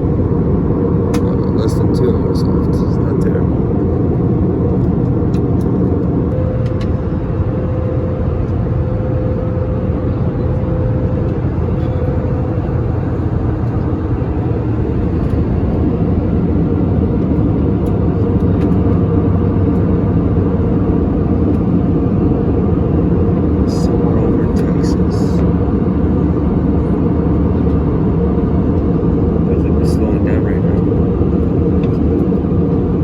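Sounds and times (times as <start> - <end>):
jet engines droning: 0.0 - 33.0
faint steady hum: 6.0 - 17.9.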